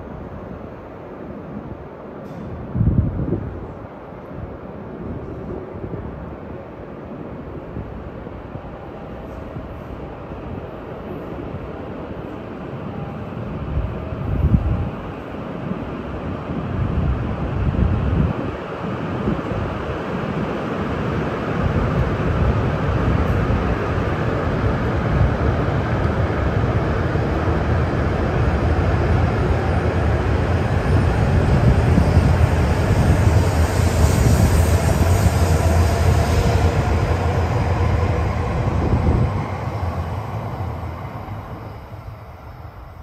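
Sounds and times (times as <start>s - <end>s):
train wheels rumbling: 0.0s - 43.0s
faint rising whine: 28.1s - 43.0s.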